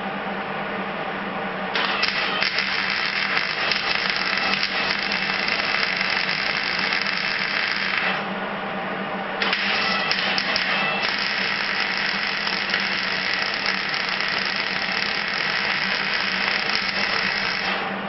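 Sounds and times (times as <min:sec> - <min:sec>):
steady low hum: 0:00.0 - 0:18.0
welder arc crackling fizz: 0:01.8 - 0:08.3, 0:09.4 - 0:18.0.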